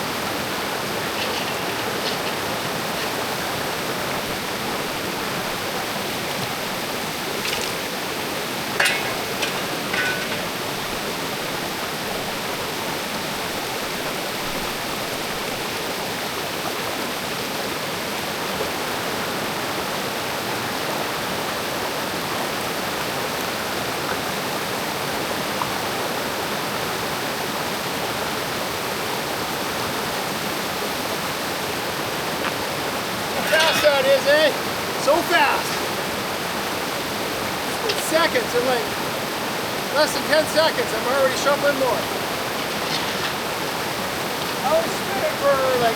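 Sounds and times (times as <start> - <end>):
creek water rushing: 0.0 - 45.9
knocks and scrapes: 0.9 - 3.8, 8.8 - 10.9, 33.4 - 36.1, 40.6 - 44.7.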